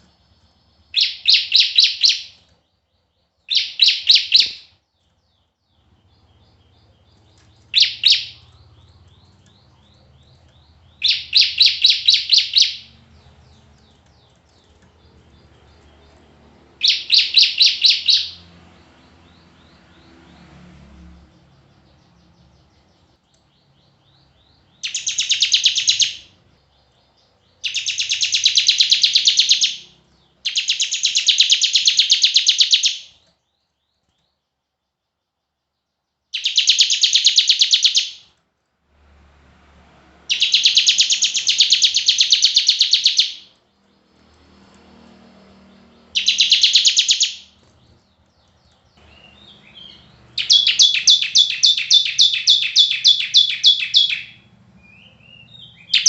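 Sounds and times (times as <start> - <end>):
songbird trilling: 0.1 - 2.5, 3.5 - 4.7, 6.0 - 13.9, 16.8 - 18.5, 23.5 - 33.2, 36.4 - 38.2, 40.3 - 43.5, 45.9 - 48.0, 49.0 - 56.0.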